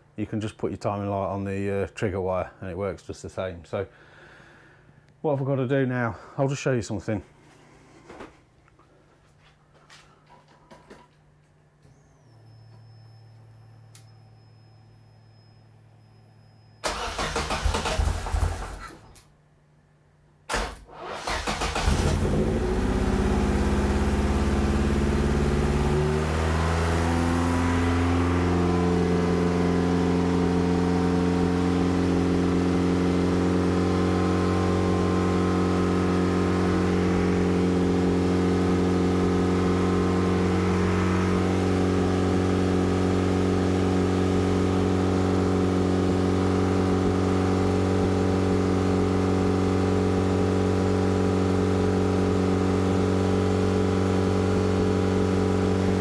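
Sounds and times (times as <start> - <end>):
car engine starting and idling fast: 16.8 - 18.9, 20.5 - 56.0.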